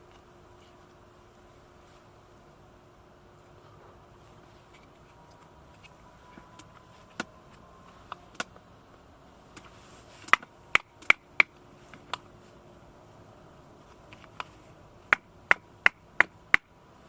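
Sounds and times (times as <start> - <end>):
firewood being chopped: 9.6 - 12.3, 15.1 - 16.7.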